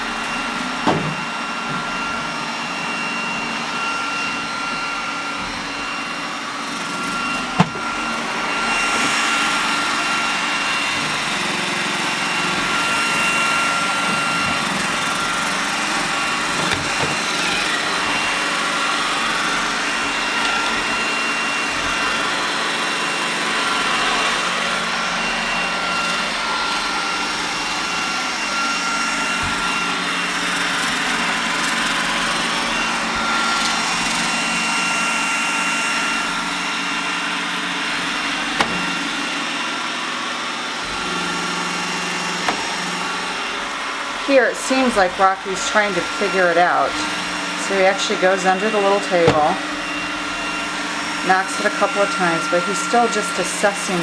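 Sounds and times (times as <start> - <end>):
robot vacuum whining: 0.0 - 54.0
robot bumping knocks: 7.6 - 7.8.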